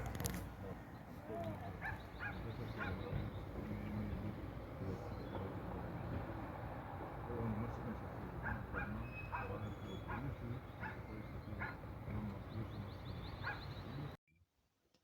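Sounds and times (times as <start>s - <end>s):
dog yipping: 1.4s - 3.0s, 8.4s - 11.0s, 13.4s - 13.7s.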